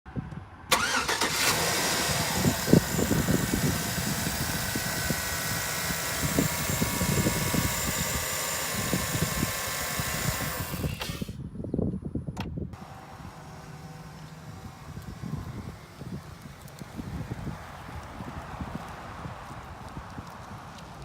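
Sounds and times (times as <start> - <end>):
pickup engine idling: 0.8 - 7.6, 12.8 - 17.2.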